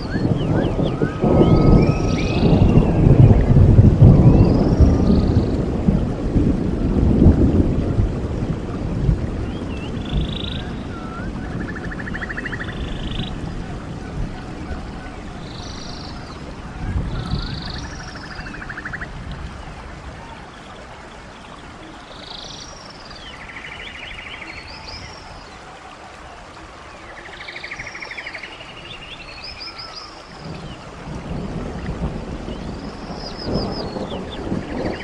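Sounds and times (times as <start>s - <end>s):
birds chirping and trilling: 0.0s - 3.5s, 9.4s - 25.7s, 26.9s - 31.6s, 32.4s - 35.0s
stream rushing: 0.0s - 35.0s.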